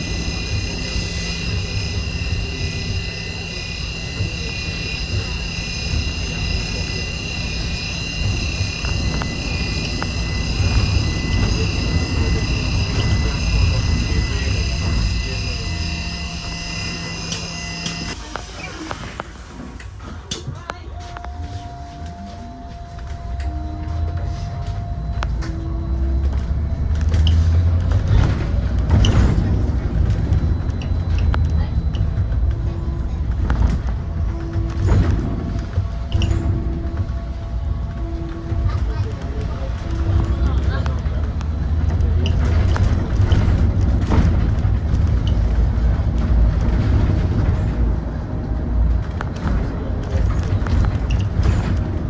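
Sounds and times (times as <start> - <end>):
high-pitched whining tones: 0.0 - 20.0
low road rumble: 0.0 - 52.0.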